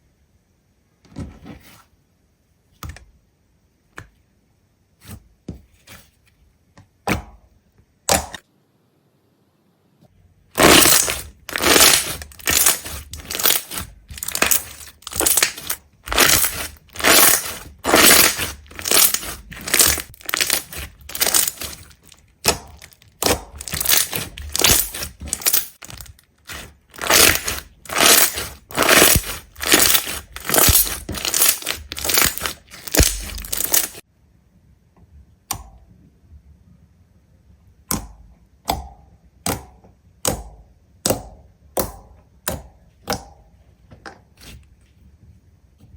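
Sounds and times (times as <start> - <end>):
loud crunching crackling strokes: 10.6 - 34.0.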